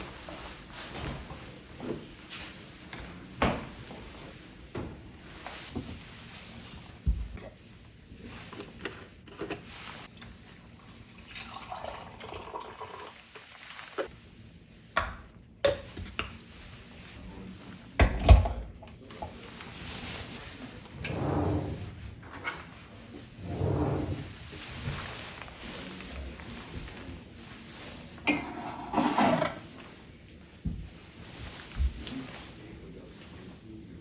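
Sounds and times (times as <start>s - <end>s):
running liquid: 11.0s - 14.1s.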